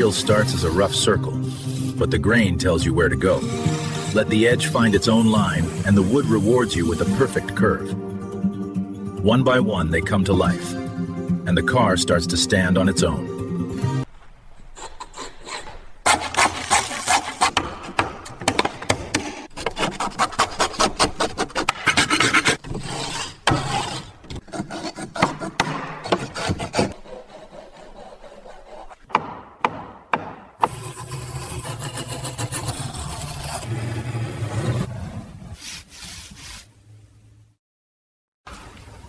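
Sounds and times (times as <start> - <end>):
rasp scraping wood: 0.0 - 7.4, 14.8 - 35.0
steady rubbing: 3.2 - 7.3.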